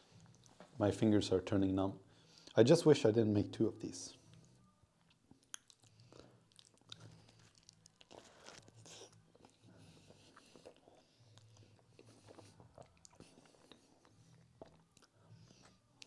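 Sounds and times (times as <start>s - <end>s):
faint chewing: 0.1s - 0.7s, 4.2s - 16.0s
wet mouth clicks: 5.1s - 8.2s.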